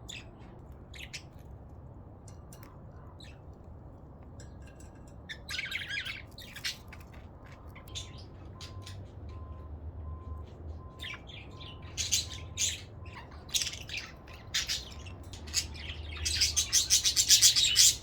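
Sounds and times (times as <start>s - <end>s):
budgerigars chirping: 5.3s - 9.5s, 10.8s - 18.0s.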